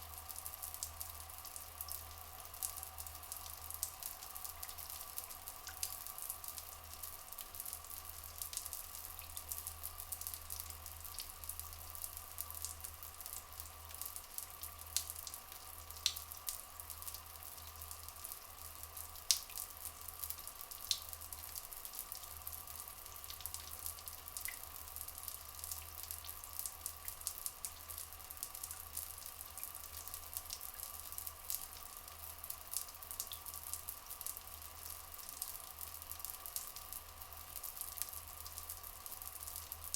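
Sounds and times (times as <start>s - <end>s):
water trickling and dripping: 0.0s - 39.9s.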